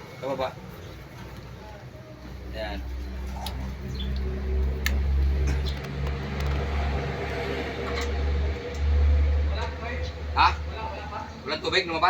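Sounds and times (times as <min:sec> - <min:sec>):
electric water pump humming: 0:03.0 - 0:09.5.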